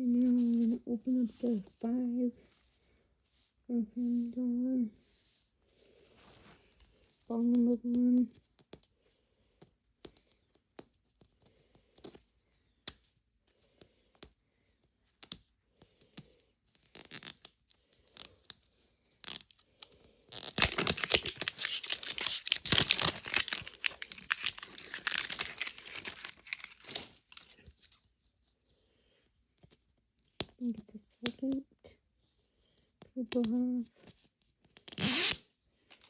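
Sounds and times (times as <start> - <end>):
paper wrapping tearing and crinkling: 20.3 - 27.6.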